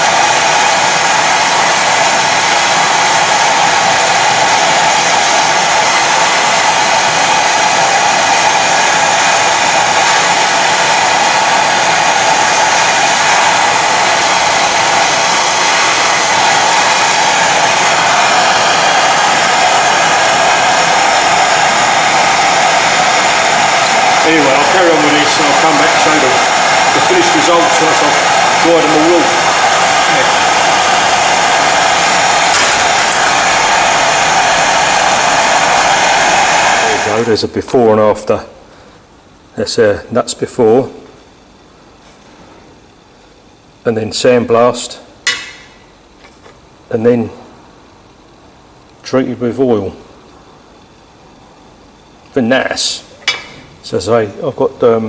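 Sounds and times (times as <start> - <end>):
compressed air tool hissing: 0.0 - 37.4
sandblast gun blasting: 0.0 - 37.4.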